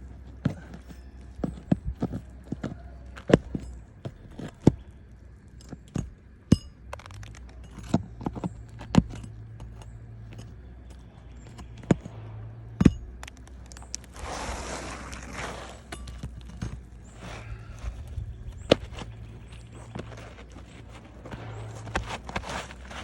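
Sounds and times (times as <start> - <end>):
low steady hum: 0.0 - 23.0
hard objects knocking and clinking: 0.2 - 14.2, 15.8 - 17.2.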